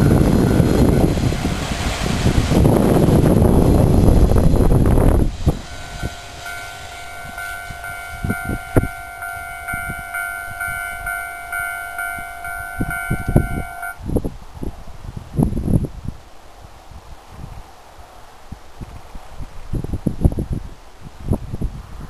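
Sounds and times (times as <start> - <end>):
train rumbling past: 0.0 - 14.2
pulsing ringing tone: 5.6 - 14.0.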